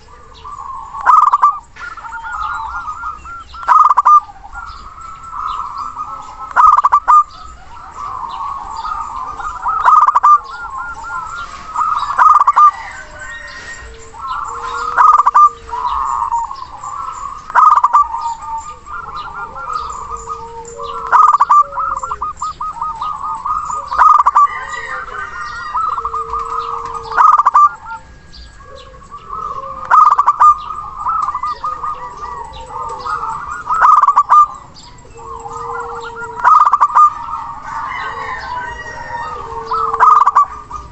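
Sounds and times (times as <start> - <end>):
doves cooing: 0.0 - 40.9
faint high bird chirps: 0.0 - 40.9.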